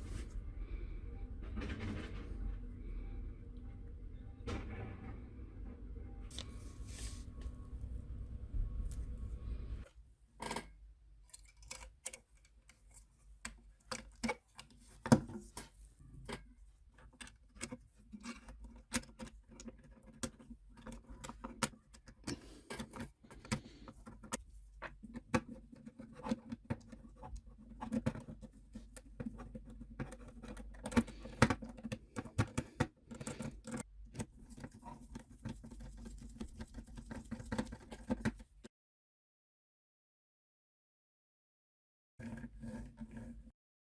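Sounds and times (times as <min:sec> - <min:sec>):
faint low hum: 0:00.0 - 0:11.4.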